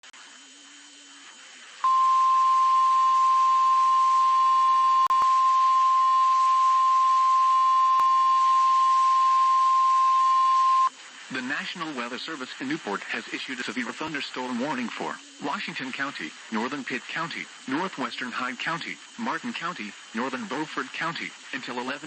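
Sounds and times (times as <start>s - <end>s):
steady radio alarm tone: 1.8s - 10.9s
faint receiver hiss: 10.9s - 22.0s.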